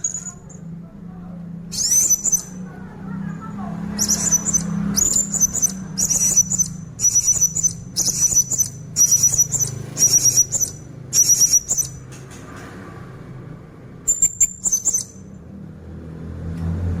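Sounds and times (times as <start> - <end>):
parrot chattering calls: 0.0 - 0.6, 1.7 - 12.1, 14.1 - 15.3.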